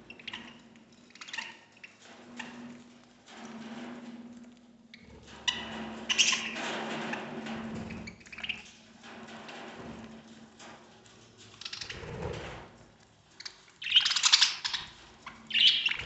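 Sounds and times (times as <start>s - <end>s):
scratchy clicking and pattering: 0.0s - 16.0s
budgerigars chattering: 15.5s - 16.0s.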